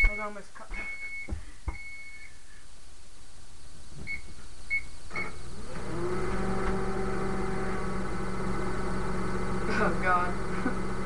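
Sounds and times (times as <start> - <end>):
microwave keypad beeps: 0.0 - 2.3
microwave oven humming: 3.8 - 11.0.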